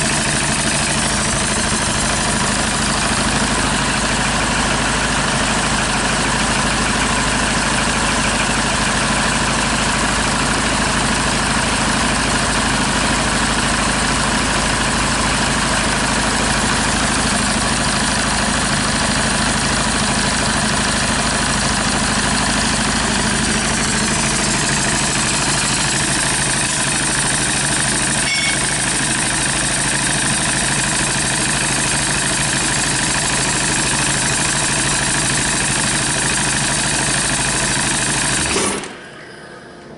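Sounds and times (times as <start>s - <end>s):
diesel engine idling: 0.0s - 39.2s.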